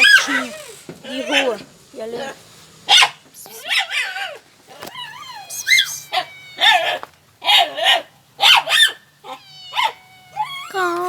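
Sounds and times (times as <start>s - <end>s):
dog yipping barks: 2.9s - 10.0s
dog whining: 3.4s - 8.0s, 8.6s - 11.0s.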